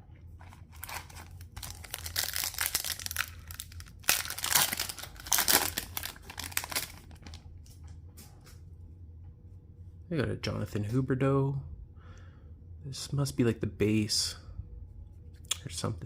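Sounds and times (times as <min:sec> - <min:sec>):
wrapper ripping: 0:00.4 - 0:07.4
foil wrapper crinkling: 0:00.4 - 0:07.5.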